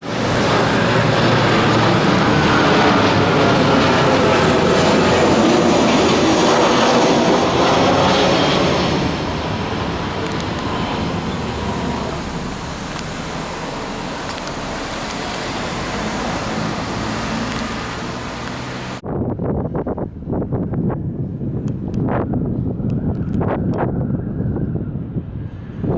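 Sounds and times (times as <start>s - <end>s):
aircraft roaring overhead: 0.0s - 19.1s.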